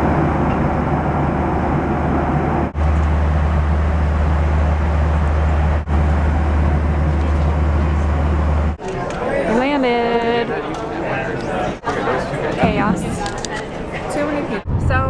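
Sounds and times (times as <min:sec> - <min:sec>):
low engine drone: 0:00.0 - 0:08.8.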